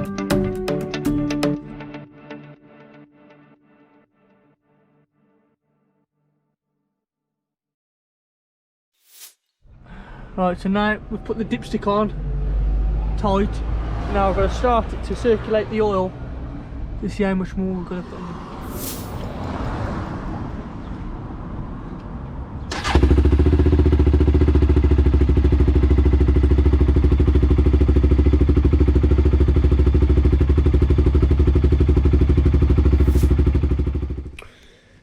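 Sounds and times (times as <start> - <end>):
quad bike engine idling: 22.8 - 34.4.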